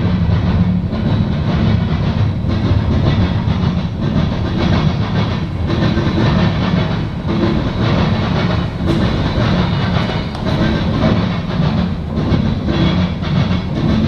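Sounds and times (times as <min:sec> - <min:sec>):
freight train cars rumbling past: 0:00.0 - 0:14.0
wheel clatter on rails: 0:00.0 - 0:14.0.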